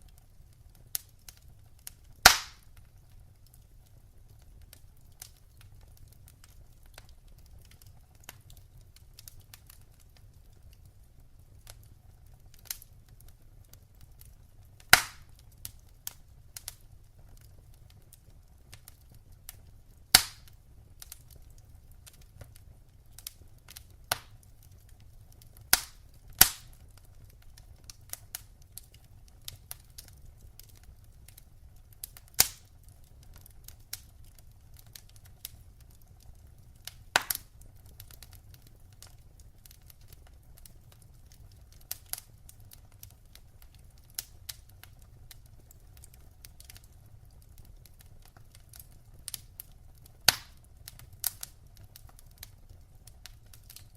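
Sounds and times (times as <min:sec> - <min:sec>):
wood fire crackling: 0:00.0 - 0:53.9
fire popping loudly: 0:01.0 - 0:03.1, 0:14.8 - 0:31.0, 0:31.6 - 0:53.9.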